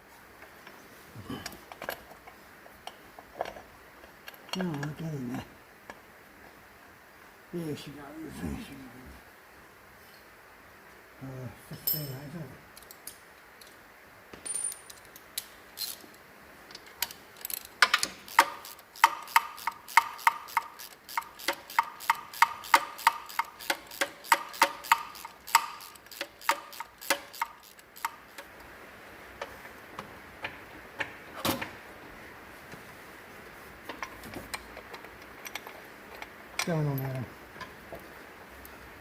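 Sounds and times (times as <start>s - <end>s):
socket ratchet clicking: 17.0s - 28.6s.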